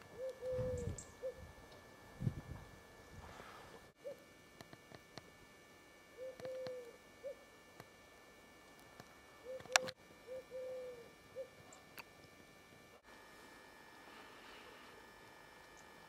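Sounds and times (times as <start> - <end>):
bird hooting coos: 0.0 - 1.6, 3.9 - 4.4, 6.1 - 7.5, 9.4 - 11.9.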